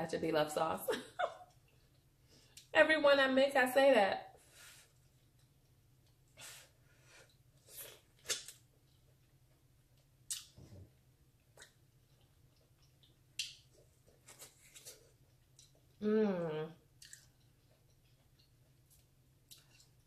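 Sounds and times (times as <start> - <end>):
wet mouth clicks: 10.3 - 10.6.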